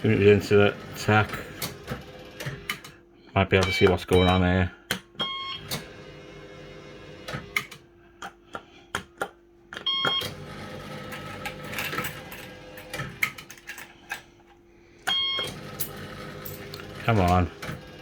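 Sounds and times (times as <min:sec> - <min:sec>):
machine hum: 0:00.0 - 0:18.0
electronic beep chimes: 0:03.6 - 0:04.4.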